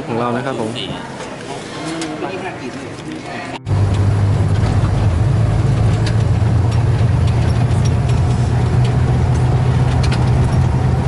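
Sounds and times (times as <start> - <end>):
vehicle engine and road drone: 3.6 - 11.0
light rattles and clicks: 3.8 - 11.0.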